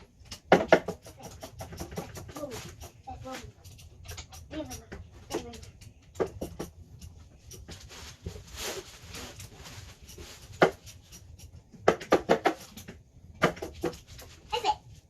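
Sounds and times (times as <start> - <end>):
rustling: 7.2 - 11.4.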